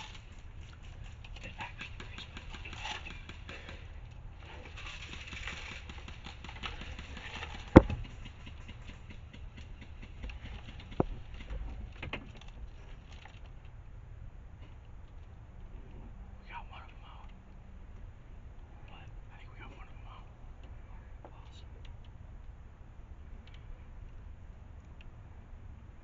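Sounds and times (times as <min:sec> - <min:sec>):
faint rustling: 0:00.0 - 0:13.8.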